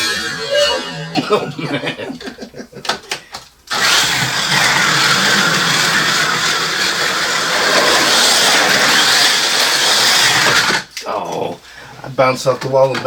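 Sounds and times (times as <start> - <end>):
small electric motors whining: 0.0 - 1.2, 3.7 - 10.9
slot cars rushing on track: 3.9 - 8.9.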